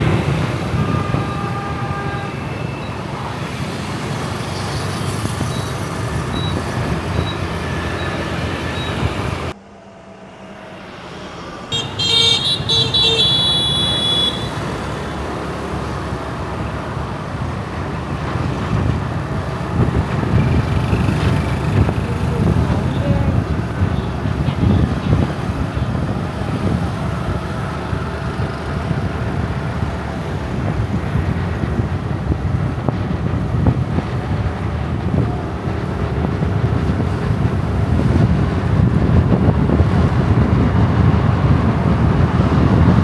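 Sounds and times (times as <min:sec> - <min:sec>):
city street traffic: 0:00.0 - 0:43.0
vehicle horn honking: 0:00.1 - 0:03.5, 0:11.7 - 0:15.6.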